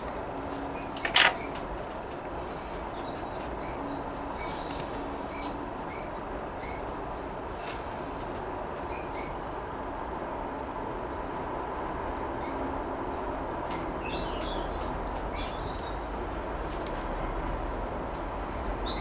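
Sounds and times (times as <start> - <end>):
small bird chirping: 0.7 - 1.6.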